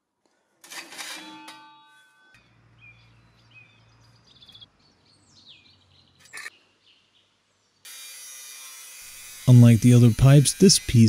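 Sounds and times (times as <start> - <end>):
faint birds chirping: 2.4 - 7.9.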